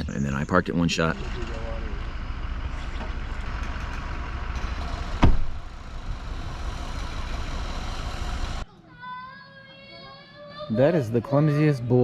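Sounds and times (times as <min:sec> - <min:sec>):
truck engine rumbling: 0:00.0 - 0:08.6.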